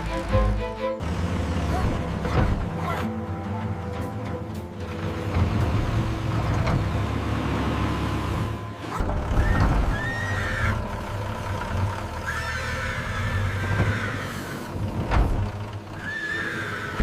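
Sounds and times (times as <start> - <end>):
horse whinnying: 12.2 - 14.7, 16.0 - 17.0.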